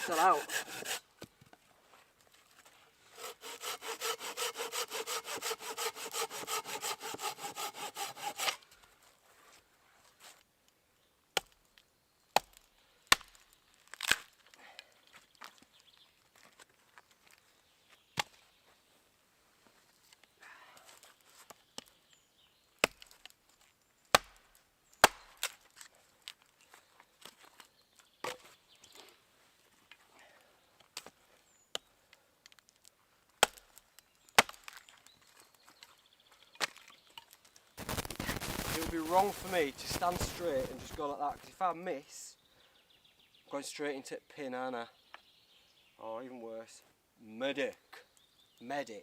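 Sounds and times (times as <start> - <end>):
saw cutting wood: 0.0 - 1.0, 3.2 - 8.6, 37.9 - 41.0.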